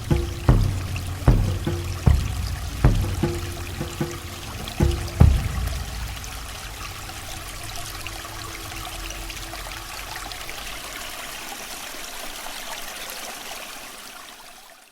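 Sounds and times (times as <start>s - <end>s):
held low note: 0.0s - 11.4s
steady rushing water noise: 0.0s - 14.9s.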